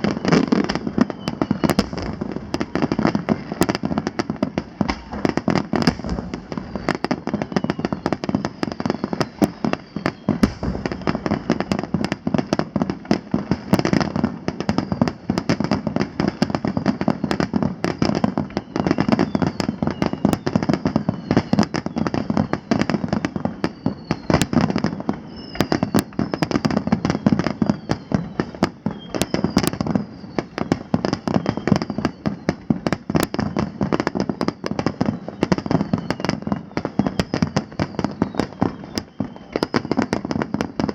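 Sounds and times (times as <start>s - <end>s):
falling whistles: 0.0s - 12.6s, 14.6s - 15.2s, 16.3s - 40.2s
fireworks crackling: 0.0s - 40.9s
firework shell bursts: 4.8s - 7.0s.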